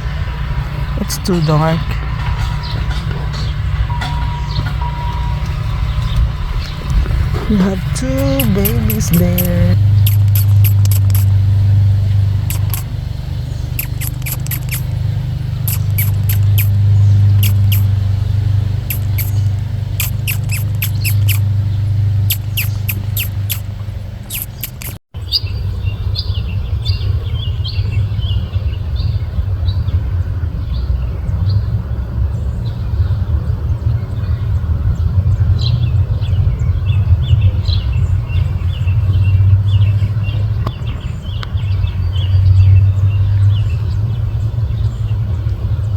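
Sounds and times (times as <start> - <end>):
small birds chirping: 5.9 - 11.7, 12.3 - 25.5.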